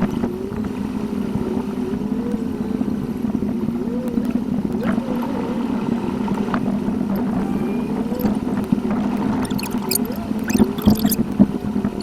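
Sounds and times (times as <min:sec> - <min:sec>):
sharp clicks: 0:09.4 - 0:11.2
squeaky pitch glides: 0:09.4 - 0:11.2.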